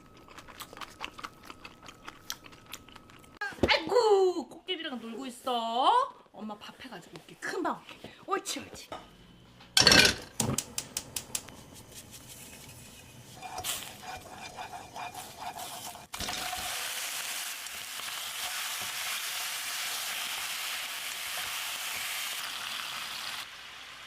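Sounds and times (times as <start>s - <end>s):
kitchen utensils clicking: 9.8s - 11.4s
food sizzling in a frying pan: 13.4s - 24.0s.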